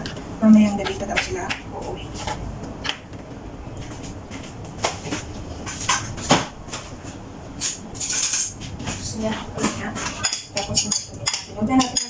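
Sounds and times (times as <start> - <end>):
dishes and utensils knocking: 9.6 - 12.0.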